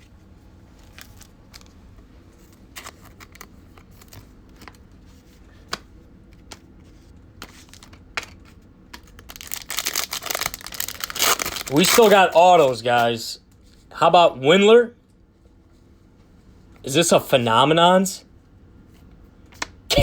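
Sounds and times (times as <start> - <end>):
plastic wrapper crinkling: 0.8 - 1.8, 9.0 - 12.7.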